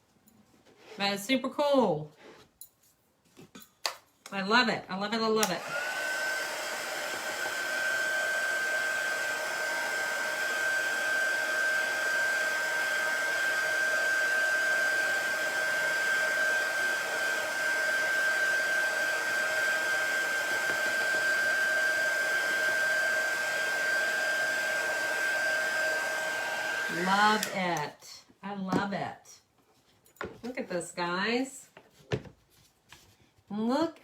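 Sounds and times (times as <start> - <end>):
hair dryer whining: 5.4 - 28.0.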